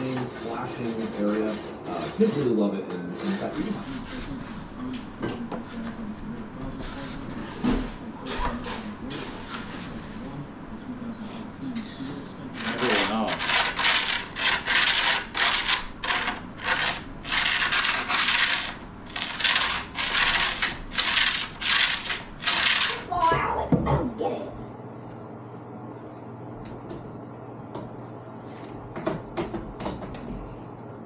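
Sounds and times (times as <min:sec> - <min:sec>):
file rasping along a board: 0:00.0 - 0:04.7, 0:12.5 - 0:23.2.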